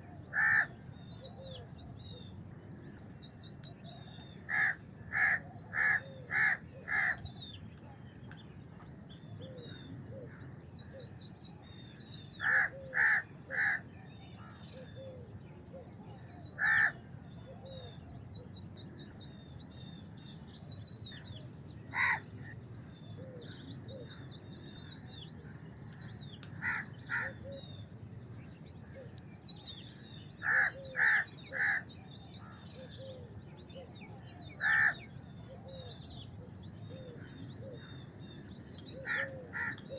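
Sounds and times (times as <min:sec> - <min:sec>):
small birds twittering: 0:00.0 - 0:39.9
crows cawing: 0:00.3 - 0:00.8, 0:04.5 - 0:07.2, 0:12.4 - 0:13.8, 0:16.6 - 0:17.0, 0:21.9 - 0:22.5, 0:26.6 - 0:27.5, 0:30.4 - 0:31.9, 0:34.6 - 0:35.1, 0:39.0 - 0:39.9.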